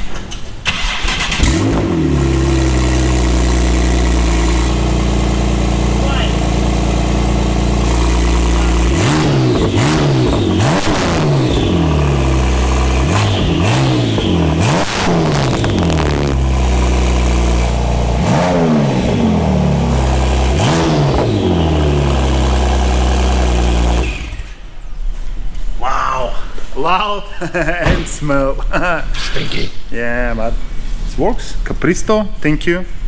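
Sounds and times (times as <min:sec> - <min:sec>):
car engine idling and revving: 0:00.6 - 0:24.9.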